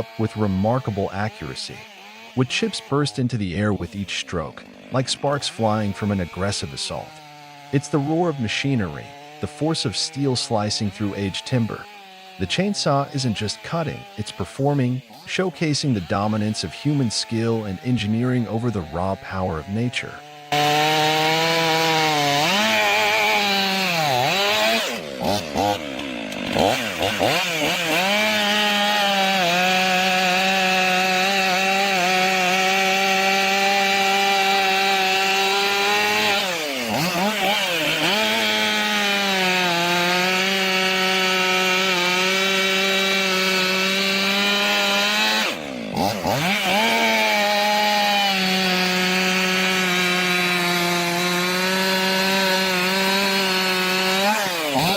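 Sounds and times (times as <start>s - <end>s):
chainsaw cutting log: 0.0s - 54.9s.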